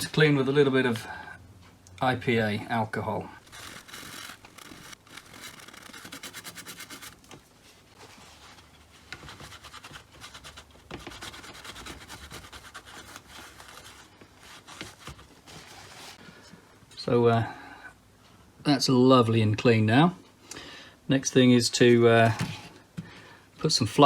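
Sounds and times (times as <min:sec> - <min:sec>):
scrubbing on circuit board: 0:03.4 - 0:07.3.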